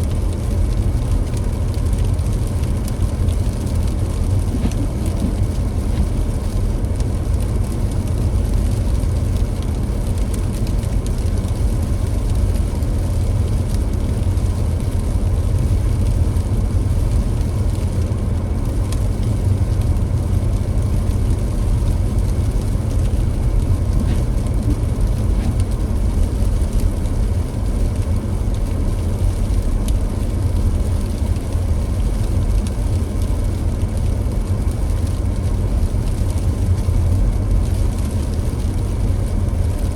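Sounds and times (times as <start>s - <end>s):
car driving: 1.4s - 7.8s, 18.6s - 29.4s.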